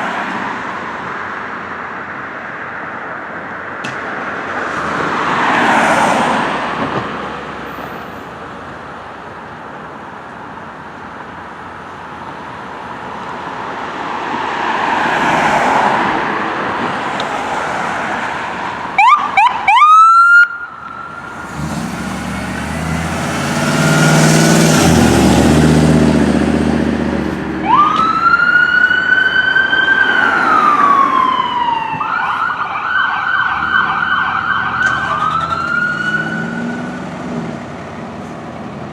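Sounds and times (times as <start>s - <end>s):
passing road traffic: 0.0s - 38.9s
fire engine siren: 19.0s - 21.9s, 22.5s - 37.1s
diesel engine pulling away: 21.2s - 38.5s.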